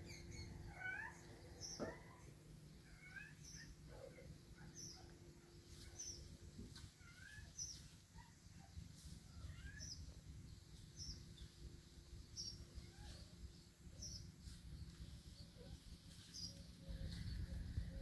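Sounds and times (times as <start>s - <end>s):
small bird high chirp: 0.0s - 3.8s, 5.7s - 8.3s, 9.0s - 10.2s, 12.3s - 17.6s
lower bird chirps: 0.0s - 18.0s.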